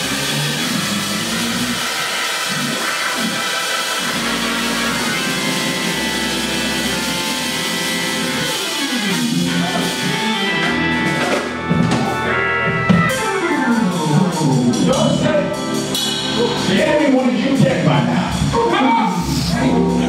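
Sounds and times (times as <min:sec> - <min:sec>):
drum strikes: 0:00.0 - 0:20.0
guitar: 0:00.0 - 0:20.0
live band music: 0:00.0 - 0:20.0.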